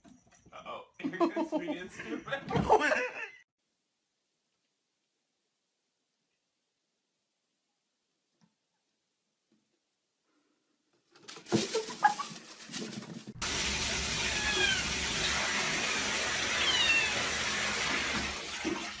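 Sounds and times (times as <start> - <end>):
water running: 13.4 - 19.0
cat meowing: 14.2 - 15.0, 16.4 - 17.3.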